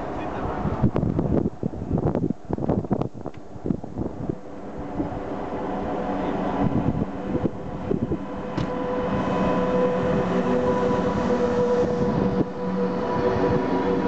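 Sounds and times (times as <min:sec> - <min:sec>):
passing train rumble: 0:00.0 - 0:14.0
humming tone: 0:04.4 - 0:14.0.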